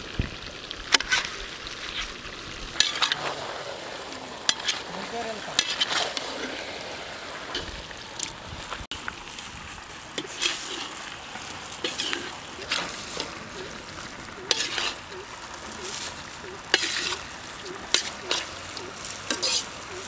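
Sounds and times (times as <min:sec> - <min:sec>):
chicken sizzling in butter: 0:00.0 - 0:20.0
metal spoon scraping a wok: 0:01.0 - 0:06.9, 0:10.1 - 0:11.1, 0:11.7 - 0:20.0.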